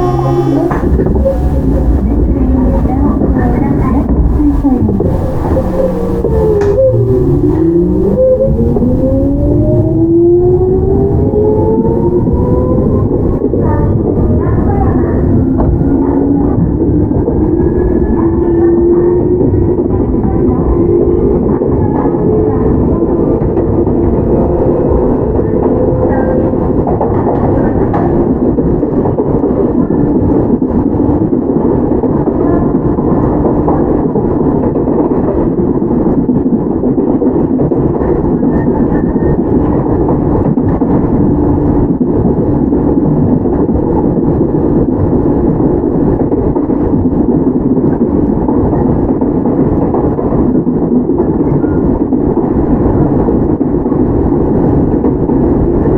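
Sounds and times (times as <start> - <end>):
traction motors humming: 0.0 - 29.0
train wheels rumbling on rail: 0.0 - 55.9.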